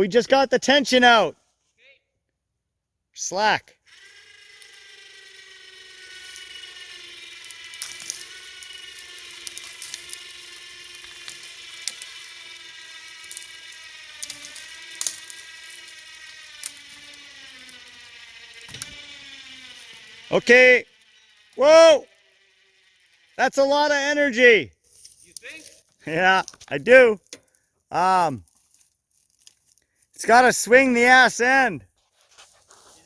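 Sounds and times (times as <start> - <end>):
winch gear whine: 3.8 - 24.4.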